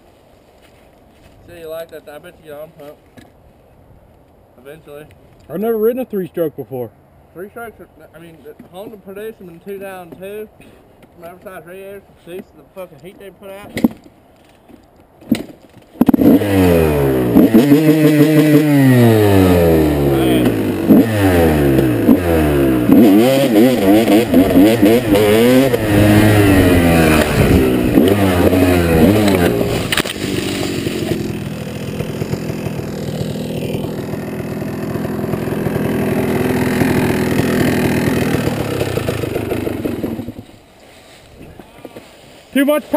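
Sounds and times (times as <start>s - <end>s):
dirt bike engine revving: 16.1s - 40.6s.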